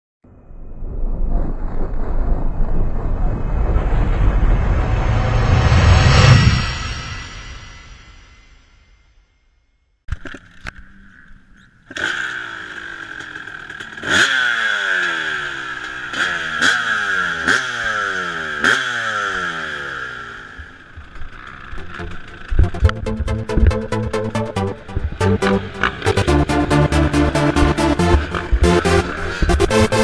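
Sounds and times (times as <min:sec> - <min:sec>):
motocross bike engine revving: 0:10.4 - 0:30.0.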